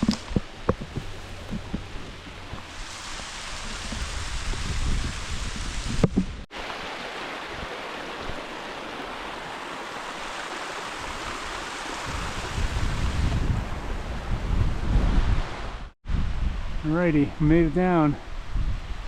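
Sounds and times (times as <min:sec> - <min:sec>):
wind rumble on microphone: 0:00.0 - 0:06.5, 0:12.0 - 0:17.0, 0:18.2 - 0:19.0
creek water rushing: 0:00.0 - 0:15.8.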